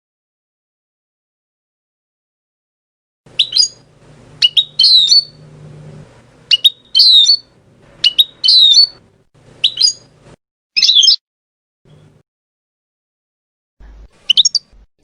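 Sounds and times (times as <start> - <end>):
finch singing twittering trills: 3.4 - 3.8, 4.4 - 5.4, 6.5 - 9.0, 9.6 - 10.1, 14.3 - 14.7.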